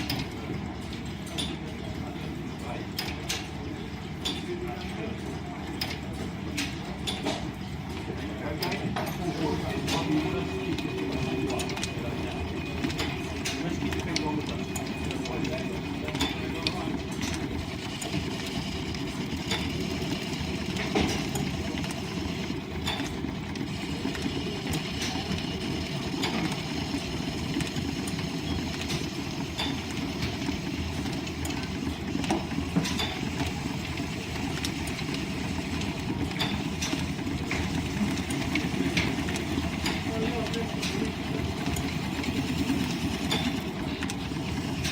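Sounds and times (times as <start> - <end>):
sharp clicks and knocks: 22.8 - 25.3.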